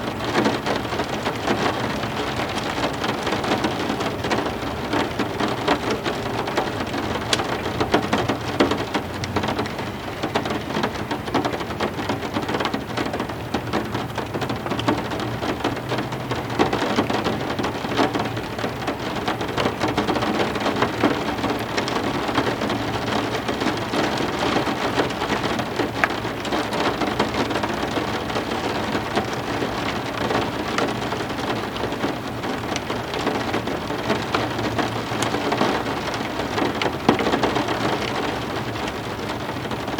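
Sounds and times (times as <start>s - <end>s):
heavy rain on hard surfaces: 0.0s - 39.9s.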